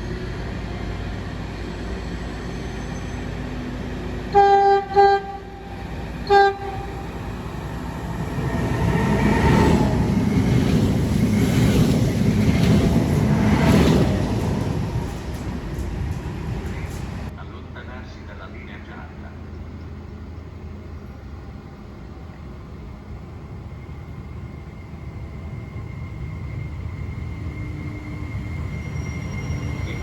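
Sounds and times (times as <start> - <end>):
train passing at speed: 0.0 - 30.0
train horn blasts: 4.3 - 7.1.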